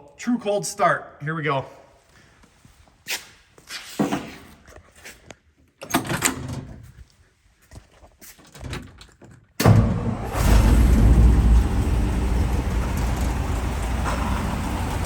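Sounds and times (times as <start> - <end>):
truck engine starting and running: 9.6 - 15.0.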